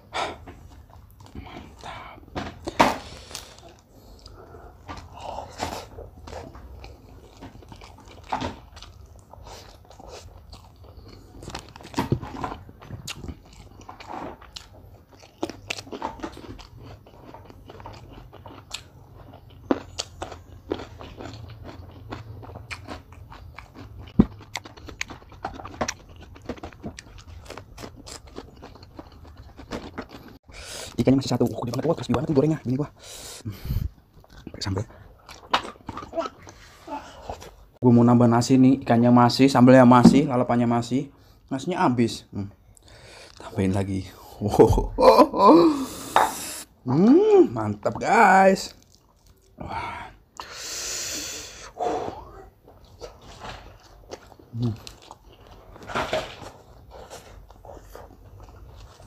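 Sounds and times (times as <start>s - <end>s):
person chewing crunchy food: 0.3s - 37.8s, 48.6s - 59.0s.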